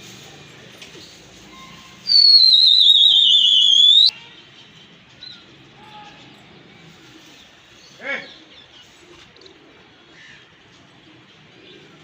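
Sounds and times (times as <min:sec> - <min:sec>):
faint bird chirps: 0:01.5 - 0:04.1
pea whistle warbling blast: 0:02.1 - 0:04.1.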